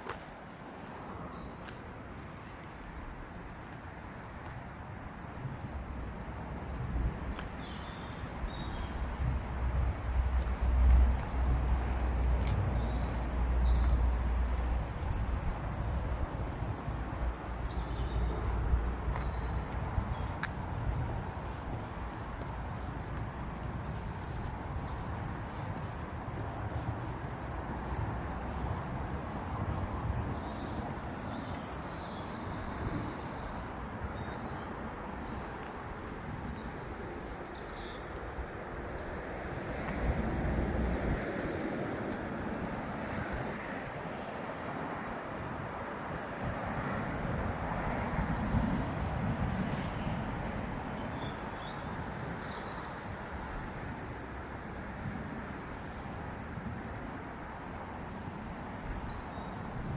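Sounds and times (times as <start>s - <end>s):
birds chirping: 12.4s - 38.9s.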